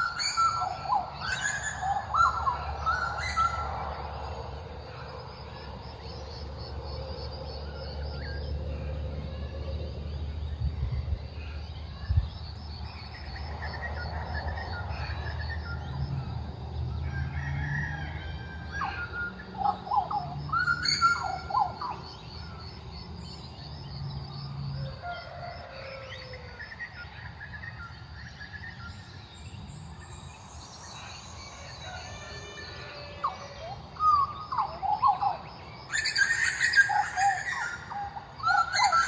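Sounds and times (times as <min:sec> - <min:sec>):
birds whistling calls: 0:00.0 - 0:05.7, 0:18.6 - 0:22.6, 0:30.1 - 0:39.0.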